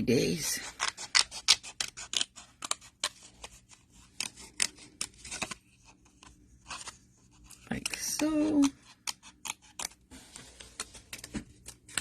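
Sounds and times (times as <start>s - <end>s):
snippers cutting paper: 0.6s - 5.6s, 7.5s - 10.0s.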